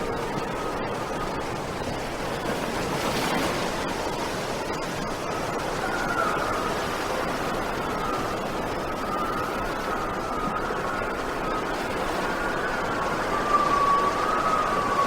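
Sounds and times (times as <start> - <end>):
faint wavering whistle: 5.4 - 15.0.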